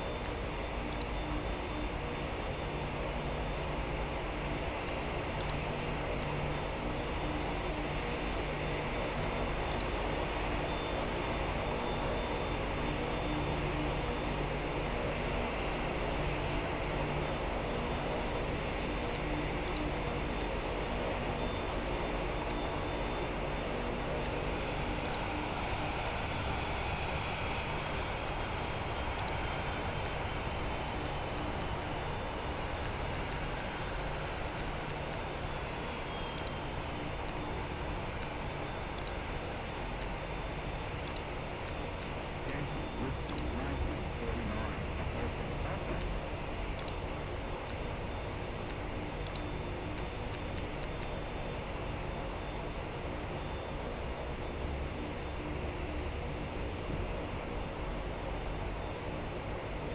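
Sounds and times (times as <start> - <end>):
distant jet engines: 0.0 - 59.9
jet engines rumbling: 20.6 - 46.7.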